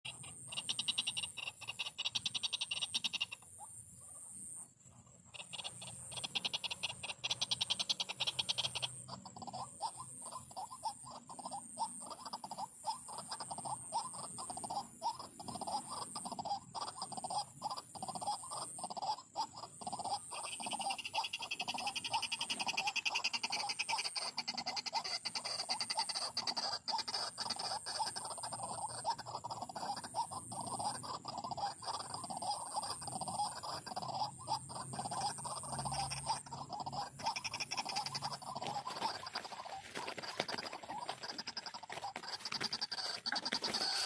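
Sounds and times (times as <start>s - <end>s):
bird croaking calls: 0.0s - 4.2s, 5.3s - 44.0s
bird high rattling trill: 34.8s - 44.0s.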